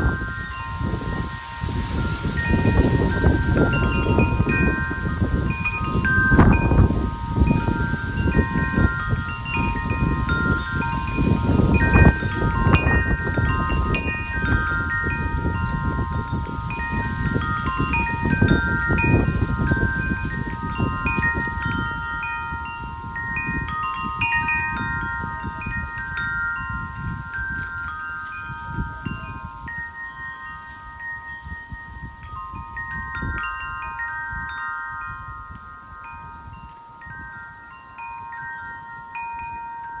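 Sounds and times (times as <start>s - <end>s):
wind chimes ringing: 0.0s - 40.0s
wind rumble on microphone: 0.0s - 40.0s.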